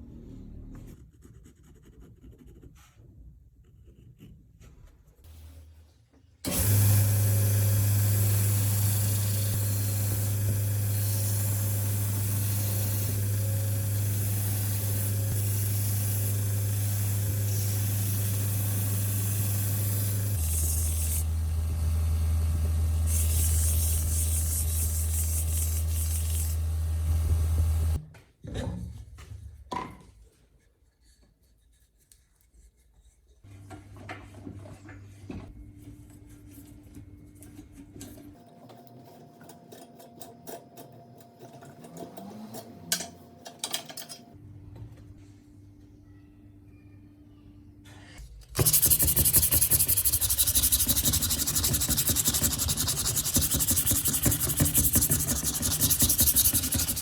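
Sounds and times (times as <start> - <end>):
power tool humming: 6.5 - 28.0, 48.6 - 57.0.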